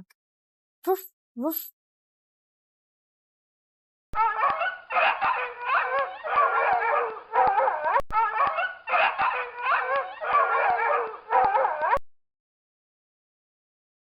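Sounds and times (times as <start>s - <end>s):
dog barking: 4.2s - 12.0s.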